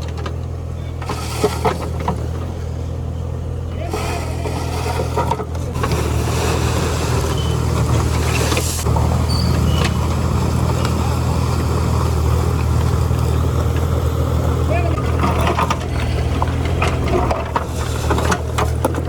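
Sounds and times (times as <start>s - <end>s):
backhoe loader engine running: 0.0s - 19.0s.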